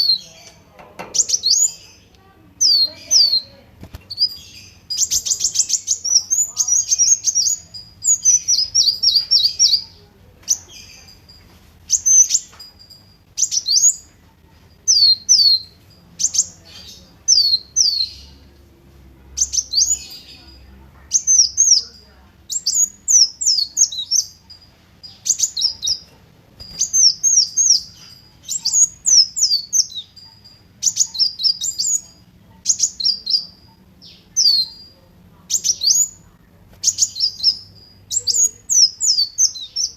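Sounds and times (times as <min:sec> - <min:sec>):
sunbird singing high chirps: 0:00.0 - 0:18.6, 0:19.3 - 0:39.9.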